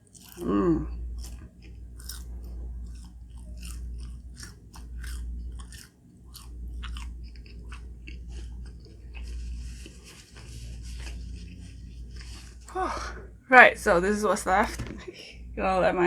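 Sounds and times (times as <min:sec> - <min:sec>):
close chewing: 0:00.0 - 0:12.8
low steady hum: 0:00.0 - 0:16.0.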